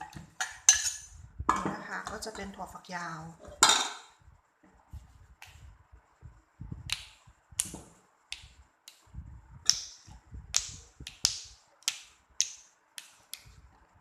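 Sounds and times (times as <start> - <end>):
soft handling noise: 4.6 - 5.8.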